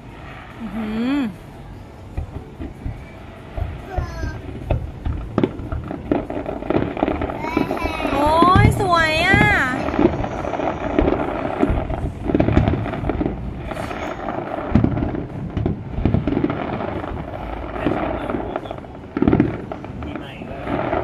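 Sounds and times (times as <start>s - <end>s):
firework crackling: 0.0s - 21.0s
firework shells booming: 0.0s - 21.0s.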